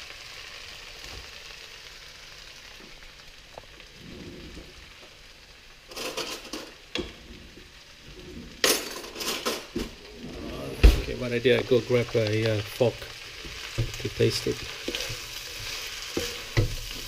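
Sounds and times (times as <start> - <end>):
stir-fry sizzling in a wok: 0.0 - 17.0
stirring noise: 11.5 - 17.0.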